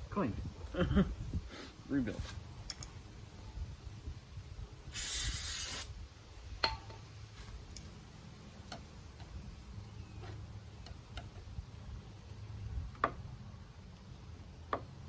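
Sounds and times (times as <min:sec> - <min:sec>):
aerosol spray hiss: 0:04.9 - 0:06.0.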